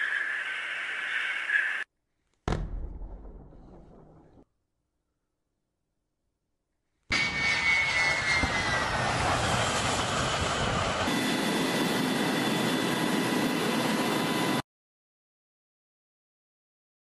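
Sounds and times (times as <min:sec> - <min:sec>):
jet engine whine: 0:00.0 - 0:01.9, 0:07.1 - 0:14.6.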